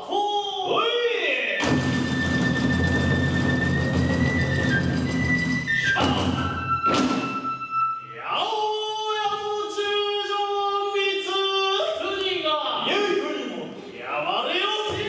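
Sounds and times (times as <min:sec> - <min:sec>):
drum and hand-cymbal strikes: 0:01.6 - 0:07.7.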